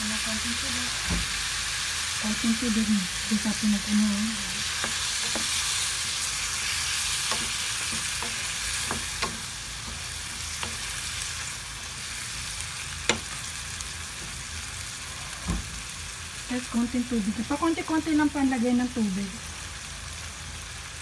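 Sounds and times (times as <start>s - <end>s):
food sizzling in a frying pan: 0.0s - 21.0s
utensil clicking against pan: 7.2s - 10.9s.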